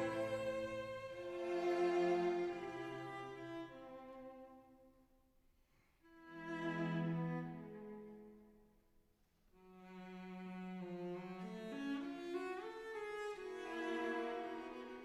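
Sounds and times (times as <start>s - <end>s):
slow bowed string music: 0.0s - 4.7s, 6.2s - 8.4s, 9.7s - 15.0s.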